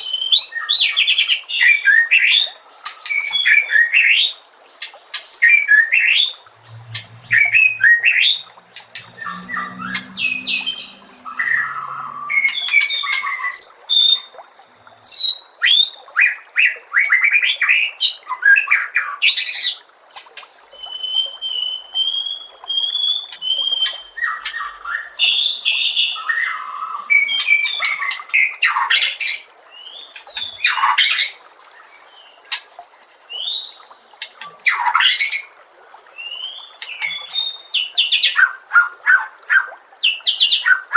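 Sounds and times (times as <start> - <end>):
bird singing whistled trills: 5.5 - 14.4, 20.8 - 28.3.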